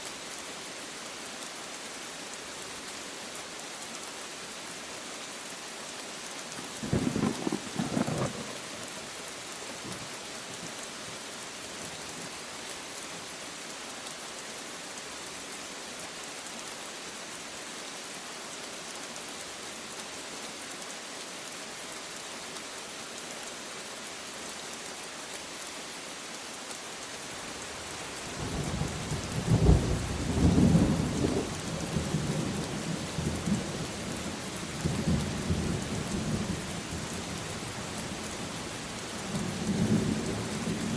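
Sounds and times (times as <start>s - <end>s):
heavy rain hissing: 0.0s - 40.9s
thunder rumbling: 6.8s - 8.6s.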